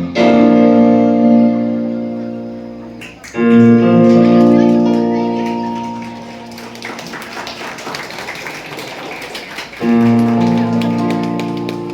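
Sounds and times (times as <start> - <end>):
music with keyboard tones: 0.0 - 6.8.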